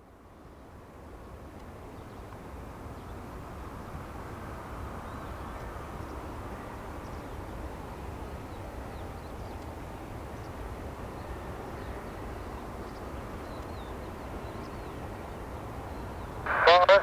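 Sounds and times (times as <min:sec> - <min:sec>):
jet engines rushing: 0:16.5 - 0:17.0.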